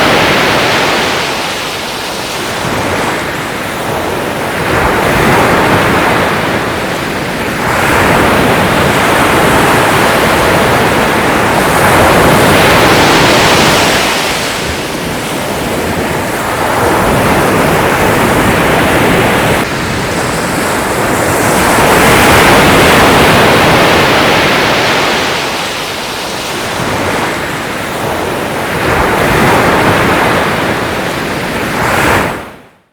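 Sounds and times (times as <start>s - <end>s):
ocean waves breaking on shore: 0.0s - 32.9s.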